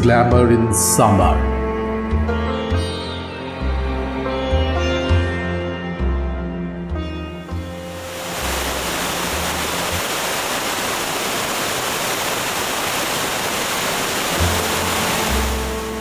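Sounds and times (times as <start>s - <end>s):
background music: 0.0s - 9.5s, 14.4s - 16.0s
waterfall rushing: 7.5s - 16.0s.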